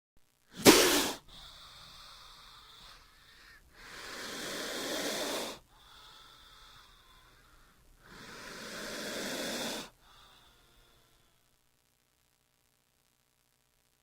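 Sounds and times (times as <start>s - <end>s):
snake hissing: 0.5s - 11.1s.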